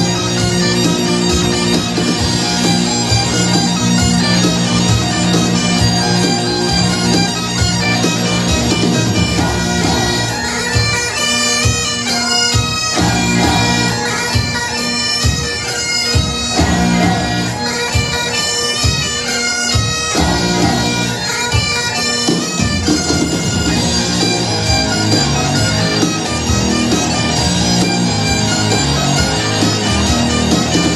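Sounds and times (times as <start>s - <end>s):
bagpipe tune over drone: 0.0s - 30.9s
drum beat: 16.5s - 17.4s.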